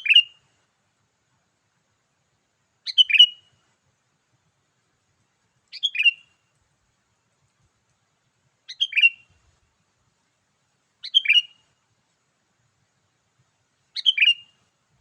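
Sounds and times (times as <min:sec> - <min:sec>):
bulbul whistled song: 0:00.0 - 0:00.4, 0:02.9 - 0:03.5, 0:05.7 - 0:06.3, 0:08.7 - 0:09.3, 0:11.0 - 0:11.6, 0:13.9 - 0:14.6.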